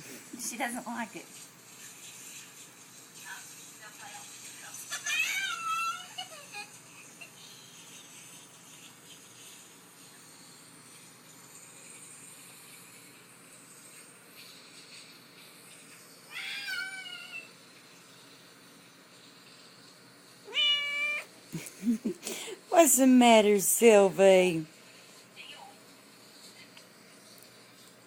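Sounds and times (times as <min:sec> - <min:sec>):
cat meowing: 0:16.3 - 0:17.5, 0:20.5 - 0:21.3.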